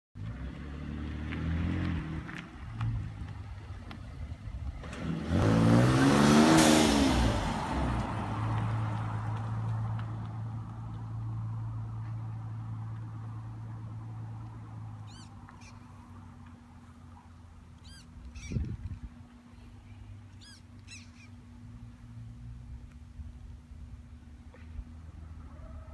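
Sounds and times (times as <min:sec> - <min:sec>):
car engine revving and idling: 0:00.2 - 0:17.0.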